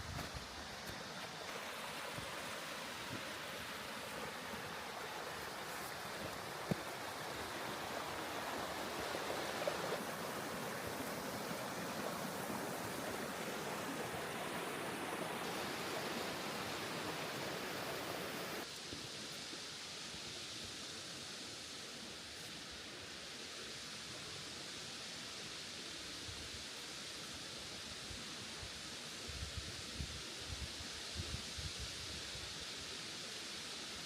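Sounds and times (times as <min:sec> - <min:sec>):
river rushing: 0:00.0 - 0:18.7.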